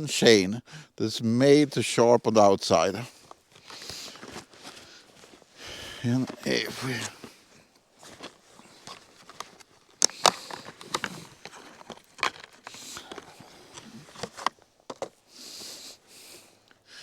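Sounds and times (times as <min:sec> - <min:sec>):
short rustles: 0:03.0 - 0:15.8
hard plastic parts clicking: 0:08.1 - 0:15.2.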